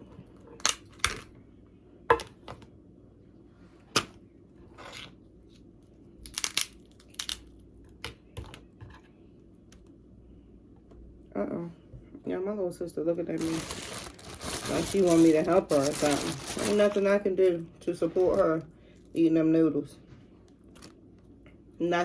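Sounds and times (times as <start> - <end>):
crab shell cracking: 6.2 - 7.7.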